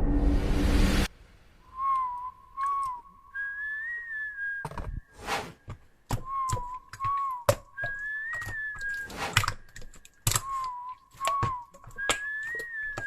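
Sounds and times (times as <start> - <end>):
faint whistled tune: 1.6 - 5.1, 6.2 - 9.2, 10.4 - 13.0.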